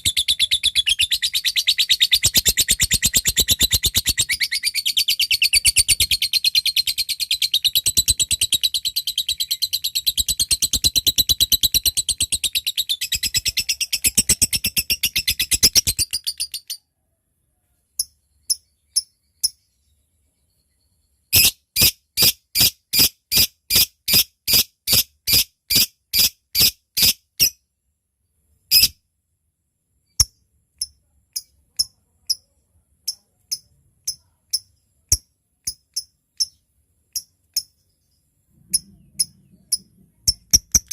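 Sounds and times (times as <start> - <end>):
lovebird chattering trill: 0.0 - 16.8, 21.3 - 27.6, 38.6 - 40.9.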